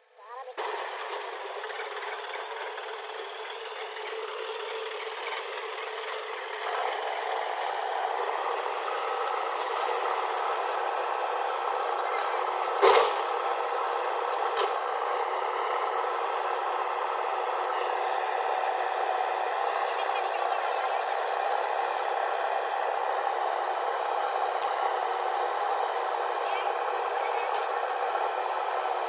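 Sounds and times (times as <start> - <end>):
machinery running: 0.6 - 29.0.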